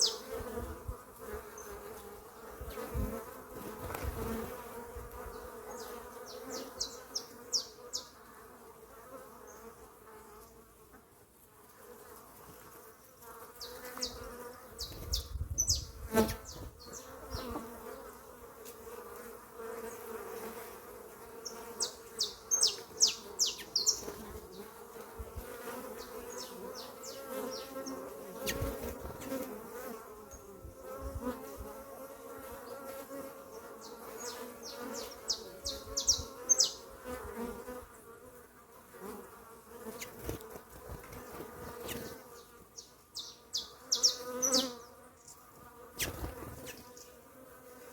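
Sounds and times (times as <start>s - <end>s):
small birds chirping: 0.0s - 0.4s, 5.2s - 8.2s, 13.0s - 17.7s, 21.4s - 24.8s, 25.9s - 29.4s, 33.5s - 36.9s, 41.7s - 47.2s
honeybees buzzing: 0.0s - 47.9s.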